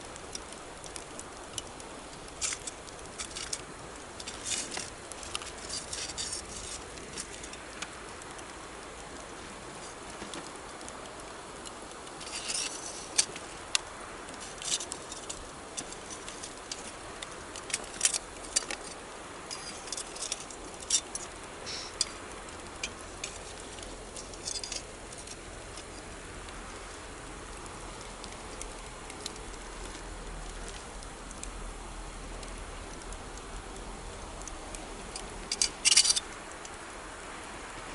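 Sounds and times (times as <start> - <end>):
river water flowing: 0.0 - 37.9
wood fire crackling: 0.0 - 37.9.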